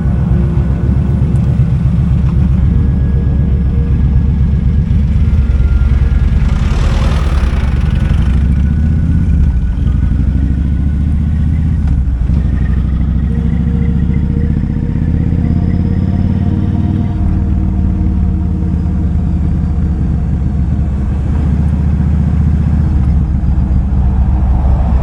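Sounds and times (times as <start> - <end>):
motorcycle engine idling low: 0.0 - 25.0
brief rushing noise: 4.4 - 10.1, 23.0 - 25.0.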